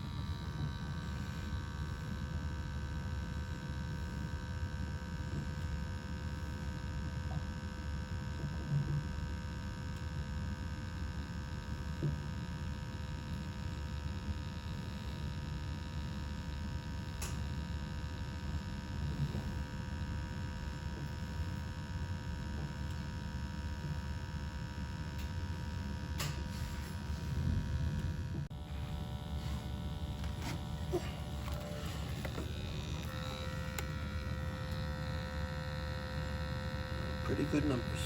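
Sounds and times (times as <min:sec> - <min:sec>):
gas boiler rumbling: 0:25.1 - 0:38.0.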